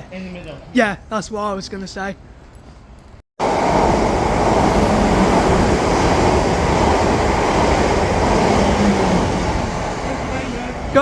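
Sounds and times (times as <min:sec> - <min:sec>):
train wheels rumbling on rails: 0:03.4 - 0:11.0.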